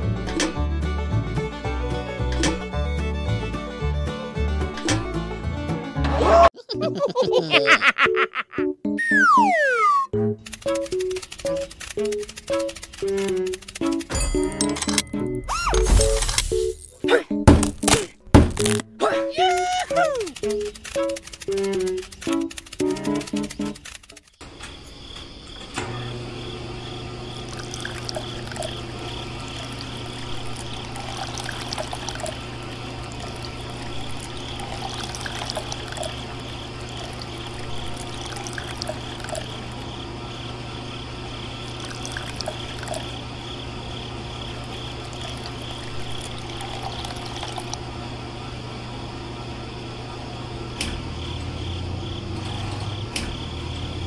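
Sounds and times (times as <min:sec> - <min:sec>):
water pump humming: 0:26.2 - 0:49.3
water pouring and trickling: 0:27.3 - 0:39.8, 0:41.6 - 0:43.2, 0:44.6 - 0:47.8.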